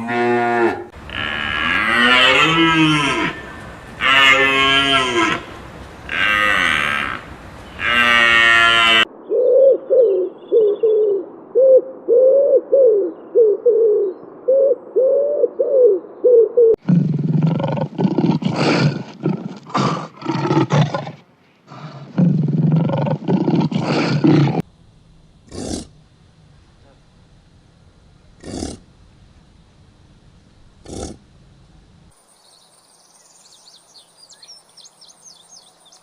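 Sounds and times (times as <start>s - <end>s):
growling roars: 16.8s - 24.6s, 25.5s - 25.9s, 28.4s - 28.8s, 30.8s - 31.2s.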